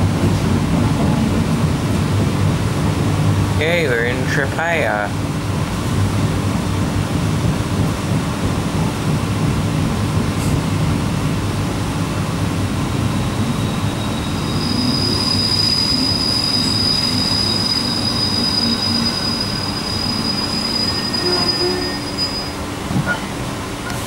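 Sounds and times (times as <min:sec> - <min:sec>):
train rumbling: 0:00.0 - 0:24.0
high-pitched braking squeal: 0:13.0 - 0:23.3.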